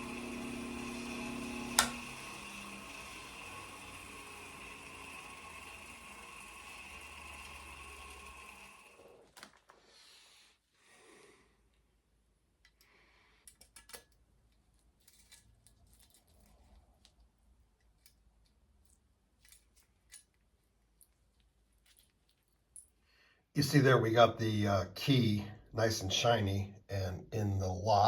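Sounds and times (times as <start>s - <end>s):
mechanical hum with whine: 0.0s - 9.2s.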